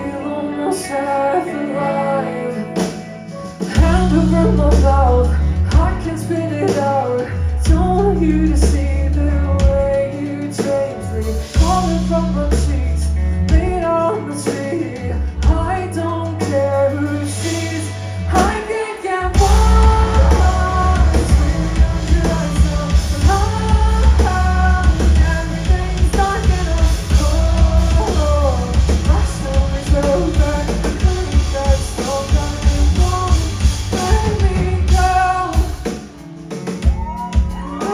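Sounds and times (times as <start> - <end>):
woman singing: 0.0 - 36.0, 36.8 - 37.9
rock band playing: 0.0 - 37.9.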